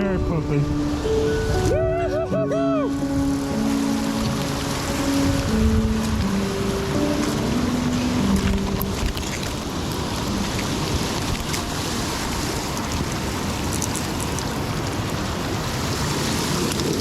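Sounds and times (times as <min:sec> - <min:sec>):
river water rushing: 0:00.0 - 0:17.0
wind noise on microphone: 0:00.0 - 0:17.0.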